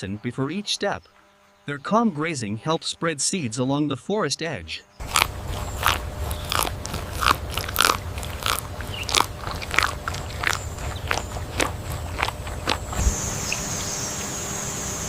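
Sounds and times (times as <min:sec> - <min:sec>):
deer chewing: 0:05.0 - 0:13.7
low steady rumble: 0:05.0 - 0:15.0.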